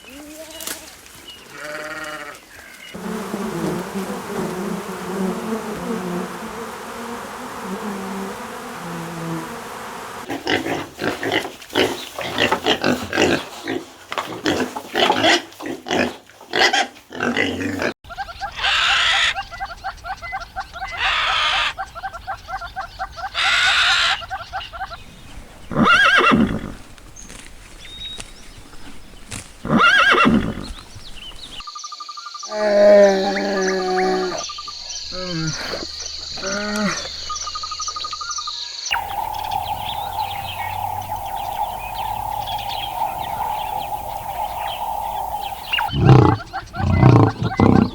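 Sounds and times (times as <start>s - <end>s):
farm animal calls: 16.5s - 27.0s, 28.2s - 31.6s, 38.9s - 47.9s.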